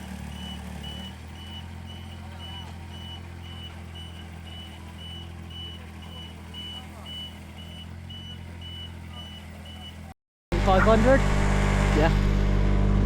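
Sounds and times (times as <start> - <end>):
engine humming: 0.0 - 13.0
reversing alarm beeping: 0.3 - 10.1.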